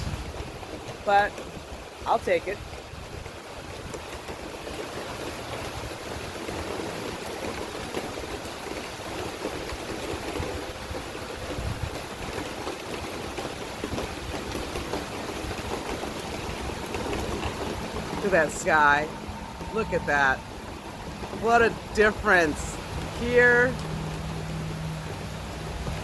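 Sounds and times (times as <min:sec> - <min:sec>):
low uneven rumble: 0:00.0 - 0:26.0
rain falling: 0:00.0 - 0:26.0.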